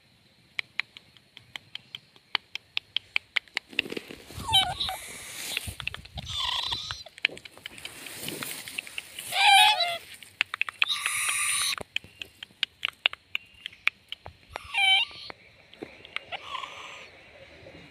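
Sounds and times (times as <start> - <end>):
owl screech: 4.4 - 5.4, 6.2 - 7.0, 9.3 - 10.0, 10.8 - 11.8, 14.5 - 15.3, 16.3 - 17.1
owl warbling call: 4.4 - 7.1, 9.2 - 10.1, 10.8 - 11.8, 14.5 - 17.7.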